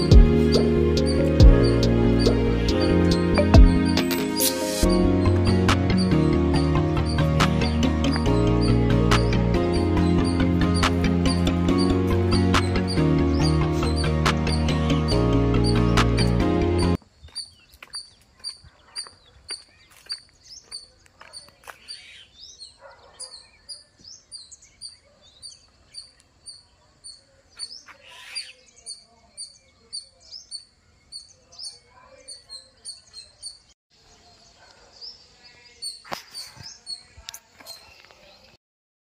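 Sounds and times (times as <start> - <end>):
bird chirping high note: 0.0 - 17.0
faint bird calls: 17.2 - 33.7.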